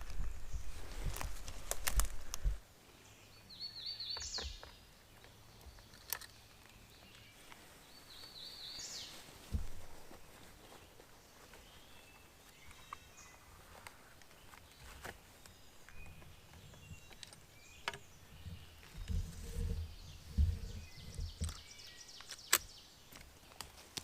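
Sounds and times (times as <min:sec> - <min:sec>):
low thumps and rustles: 0:00.0 - 0:02.6, 0:09.0 - 0:11.8, 0:13.7 - 0:22.0
faint songbird chirps: 0:00.0 - 0:24.0.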